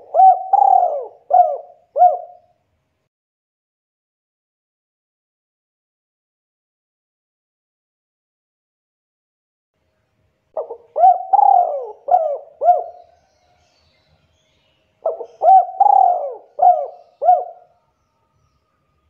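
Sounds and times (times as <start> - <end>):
dove cooing: 0.0 - 2.5, 10.6 - 13.2, 15.0 - 17.7.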